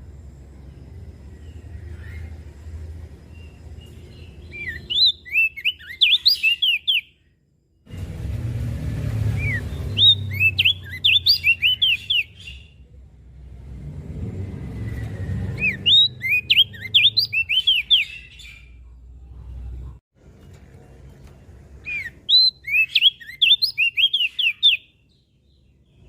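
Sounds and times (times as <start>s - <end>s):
bird singing whistled notes: 1.3s - 7.3s, 9.3s - 12.8s, 14.8s - 18.8s, 21.8s - 26.0s
low rumble: 7.9s - 10.9s, 12.6s - 16.8s.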